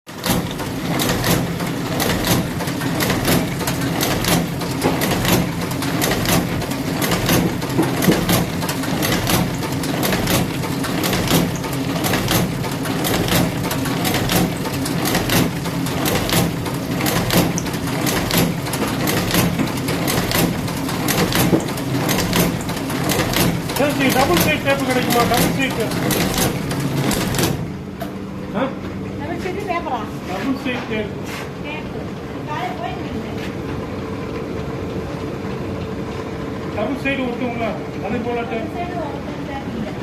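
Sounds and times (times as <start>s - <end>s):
sewing machine humming: 0.1s - 27.8s
sharp machine clicks: 0.2s - 27.6s.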